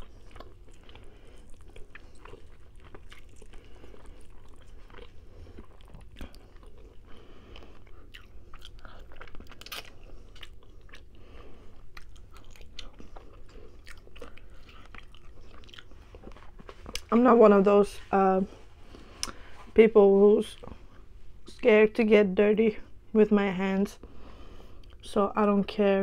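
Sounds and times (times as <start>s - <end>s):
chewing with wet clicks: 0.0s - 17.2s, 19.2s - 19.4s.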